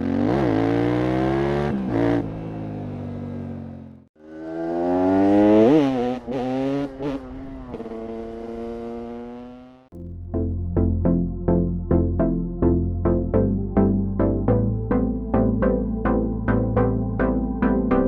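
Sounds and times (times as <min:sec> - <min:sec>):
two-stroke motorcycle engine revving: 0:00.0 - 0:10.0.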